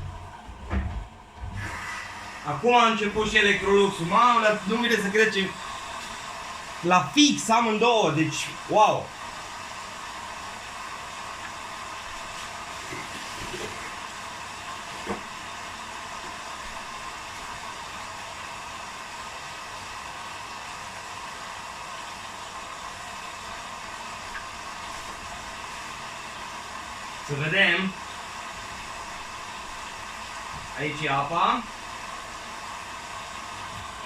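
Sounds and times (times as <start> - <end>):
faint knock: 0.0 - 1.7
water hissing into washing machines: 0.0 - 34.0.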